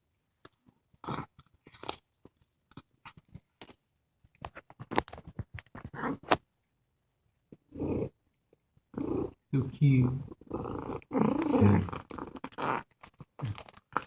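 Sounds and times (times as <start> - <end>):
cat chewing and crunching: 0.3 - 5.0, 10.3 - 14.0.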